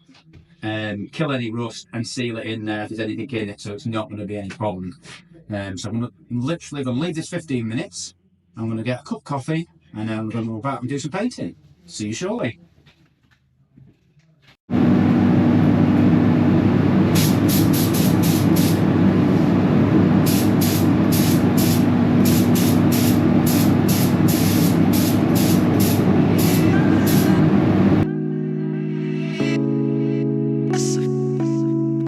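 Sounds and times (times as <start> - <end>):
machine running with hum: 14.7 - 28.1
air spray gun hissing: 17.1 - 19.4, 20.2 - 27.5.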